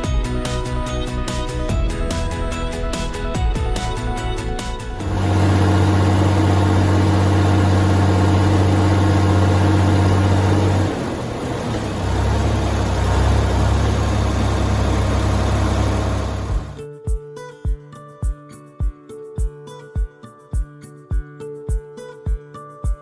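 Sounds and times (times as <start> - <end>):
tractor engine running: 1.7 - 16.8.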